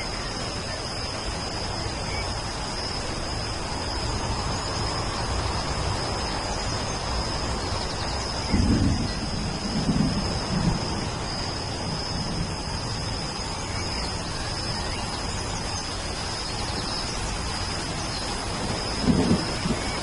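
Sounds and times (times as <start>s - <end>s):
high insect note: 0.0s - 20.0s
steady rain falling: 0.0s - 20.0s
low rolls of thunder: 8.3s - 13.4s, 18.5s - 20.0s.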